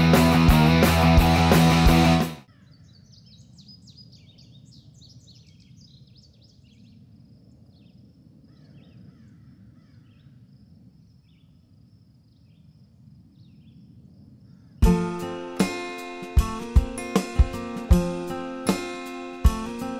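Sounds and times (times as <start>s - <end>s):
small birds chirping: 2.5s - 10.4s.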